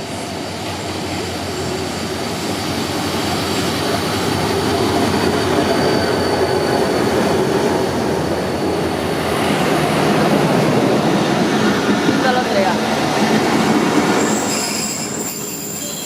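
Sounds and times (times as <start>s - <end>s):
train rumbling on rails: 0.0s - 16.0s
faint high wheel squeal: 3.3s - 9.0s, 14.2s - 16.0s.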